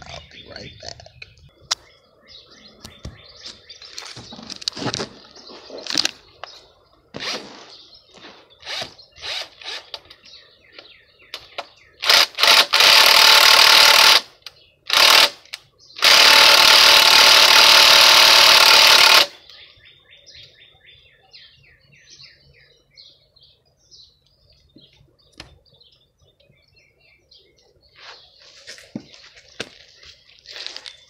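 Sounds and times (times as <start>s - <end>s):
power driver whirring: 12.0s - 14.3s, 14.9s - 19.4s.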